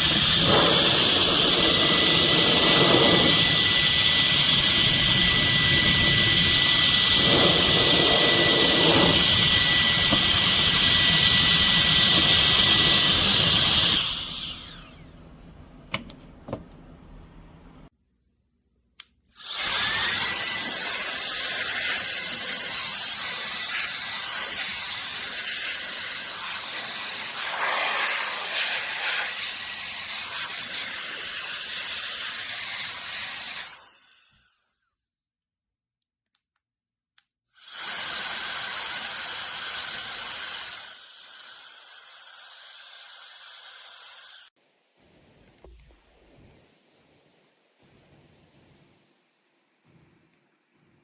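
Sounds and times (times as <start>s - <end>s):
electric air duster whine: 0.0s - 15.3s, 19.4s - 34.3s.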